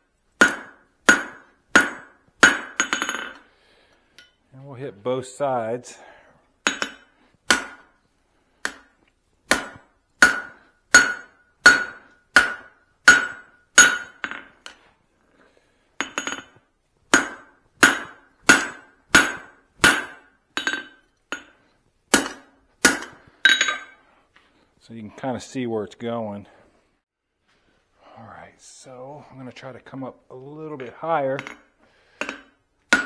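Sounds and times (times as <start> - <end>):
hammer striking metal on anvil: 0.4 - 3.4, 6.6 - 8.0, 8.6 - 8.9, 9.5 - 14.5, 16.0 - 21.5, 22.1 - 24.0, 31.4 - 33.0.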